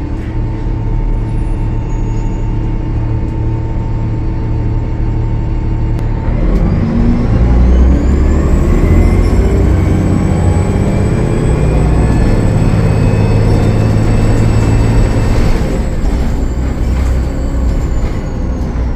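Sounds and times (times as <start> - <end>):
bus diesel engine running: 0.0 - 18.9
turbocharger whistle: 7.2 - 15.9.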